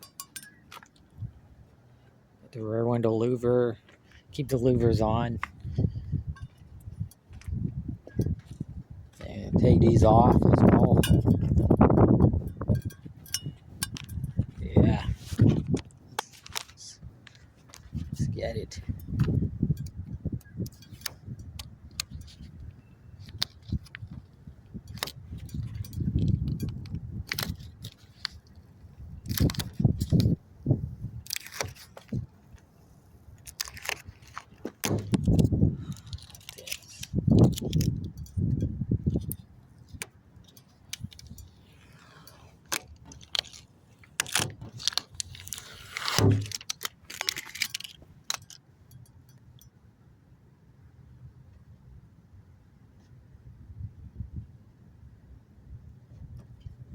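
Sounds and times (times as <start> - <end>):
clicks and rattles of car parts: 10.1 - 14.6, 15.2 - 30.4, 33.3 - 49.6
phone handling noise: 33.4 - 38.2, 39.1 - 48.6.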